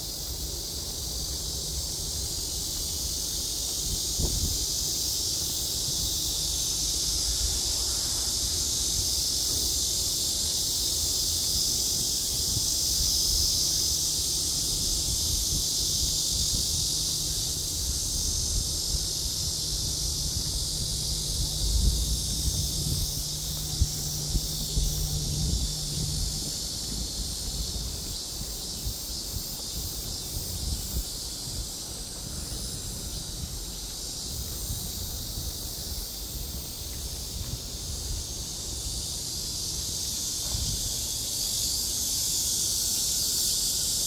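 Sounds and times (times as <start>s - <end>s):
high-pitched outdoor hiss: 0.0s - 44.0s
low hum: 16.5s - 27.4s.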